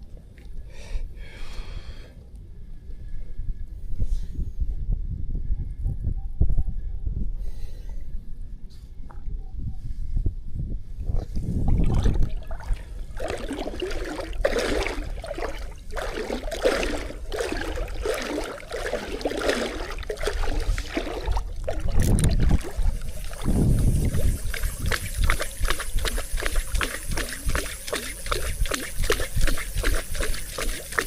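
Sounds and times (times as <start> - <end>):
water sloshing and splashing: 11.5 - 31.0.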